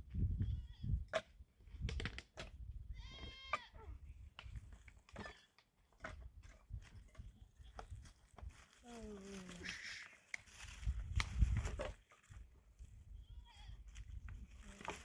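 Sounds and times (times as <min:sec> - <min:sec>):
goat bleating: 0:03.0 - 0:03.9.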